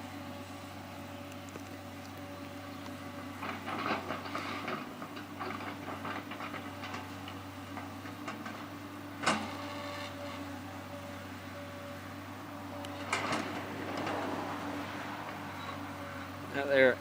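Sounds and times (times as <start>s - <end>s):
excavator diesel engine: 0.0s - 17.0s
metallic clanks and rattles: 13.0s - 14.2s.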